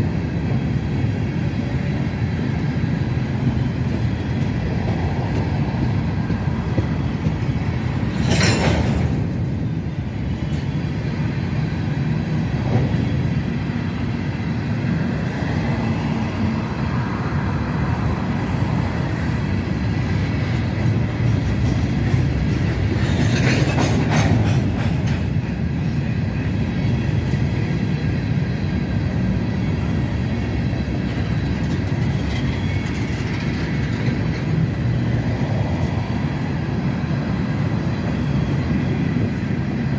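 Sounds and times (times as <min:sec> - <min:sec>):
freight train wheels rumbling: 0:00.0 - 0:39.9
wheel screeches: 0:31.5 - 0:34.5.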